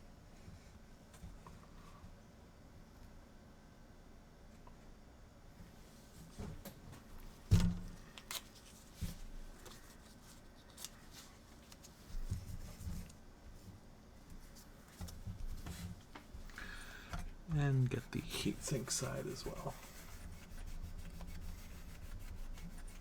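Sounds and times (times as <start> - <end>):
scraping and rubbing: 17.7 - 23.0.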